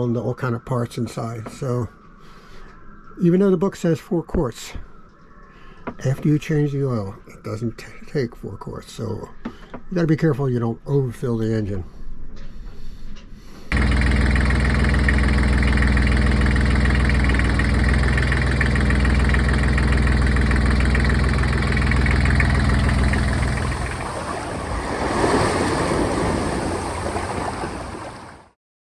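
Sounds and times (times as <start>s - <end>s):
diesel engine idling: 13.7s - 24.7s.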